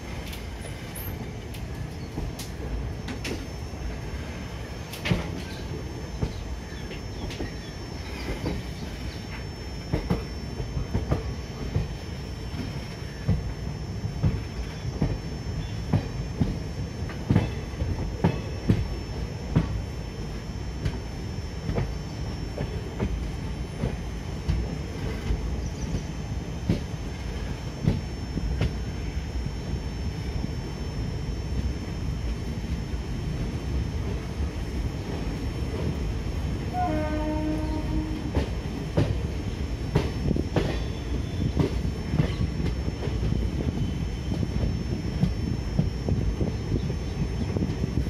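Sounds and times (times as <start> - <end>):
train rumbling: 0.0 - 48.0
train wheels clacking: 4.9 - 19.8, 37.0 - 39.3, 39.9 - 46.9.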